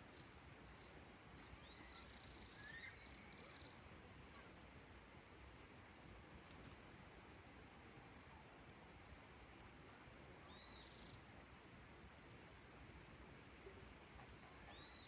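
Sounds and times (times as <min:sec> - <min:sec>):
steady low hiss: 0:00.0 - 0:15.0
bird chirps: 0:01.4 - 0:03.8, 0:10.5 - 0:11.2, 0:14.6 - 0:15.0.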